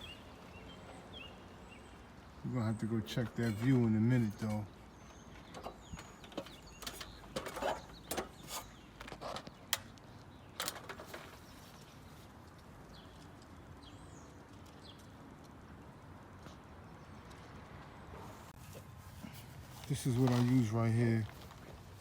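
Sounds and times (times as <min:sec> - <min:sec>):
sharp clicks and knocks: 0:05.2 - 0:11.4.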